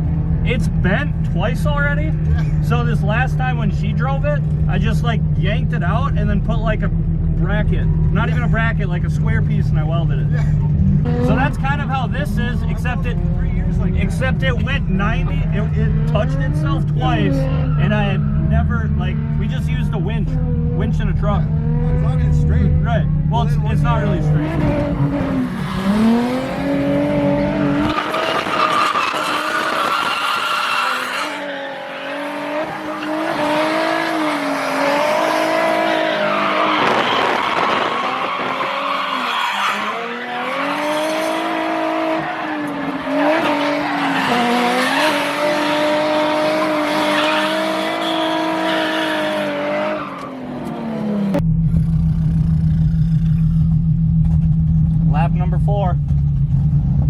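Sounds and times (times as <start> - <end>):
car engine at high revs: 0.0 - 57.0.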